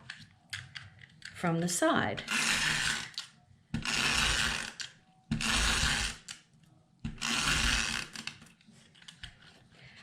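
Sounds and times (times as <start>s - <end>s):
tape runner rolling on paper: 2.3s - 6.4s, 7.1s - 8.5s.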